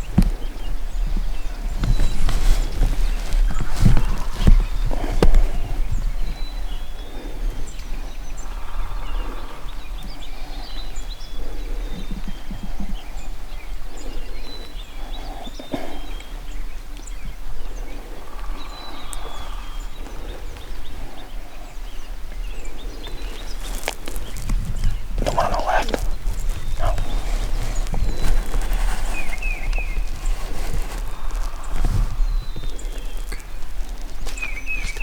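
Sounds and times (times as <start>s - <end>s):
rustling in dry leaves: 0.0s - 6.6s, 22.3s - 35.0s
songbirds chirping: 0.0s - 35.0s.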